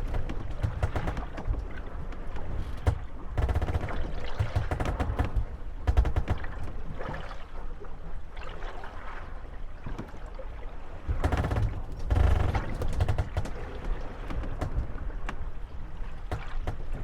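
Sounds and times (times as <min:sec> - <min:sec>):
boats knocking and rattling: 0:00.0 - 0:07.5, 0:10.8 - 0:17.0
water lapping around hulls: 0:00.0 - 0:17.0.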